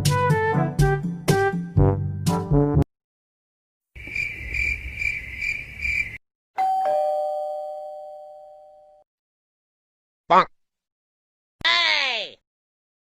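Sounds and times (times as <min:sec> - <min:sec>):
crickets chirping: 0:04.0 - 0:06.2
two-tone doorbell chime: 0:06.6 - 0:09.0.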